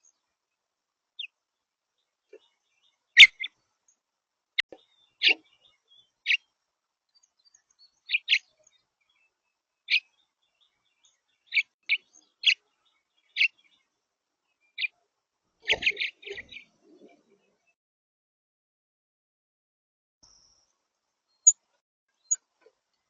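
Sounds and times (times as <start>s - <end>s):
songbird chip calls: 3.1s - 3.6s, 4.6s - 6.5s, 7.4s - 9.2s, 9.9s - 13.8s, 15.6s - 16.7s.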